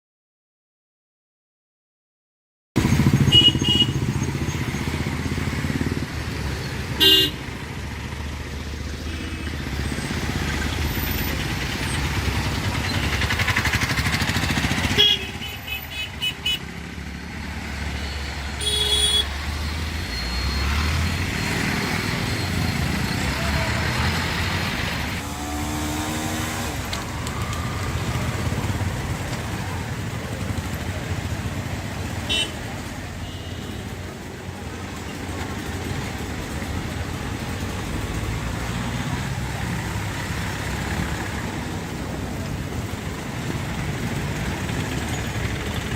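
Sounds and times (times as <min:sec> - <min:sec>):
vehicle engines running: 0:02.8 - 0:45.9
car horn toots: 0:14.9 - 0:16.6, 0:18.6 - 0:19.3.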